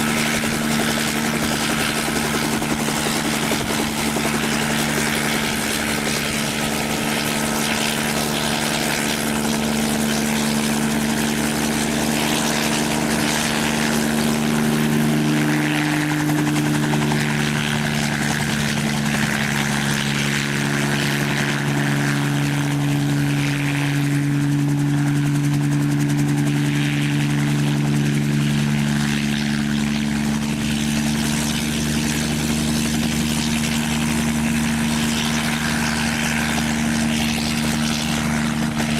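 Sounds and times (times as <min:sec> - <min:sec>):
aircraft engine drone: 0:00.0 - 0:38.9.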